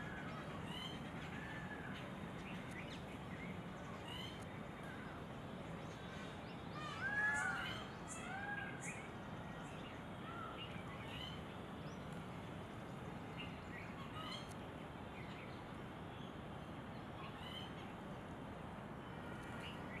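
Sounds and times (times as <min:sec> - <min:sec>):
small birds chirping and whistling: 0:00.0 - 0:05.0, 0:05.9 - 0:12.1, 0:17.2 - 0:17.9
woodland ambience hiss: 0:00.0 - 0:20.0.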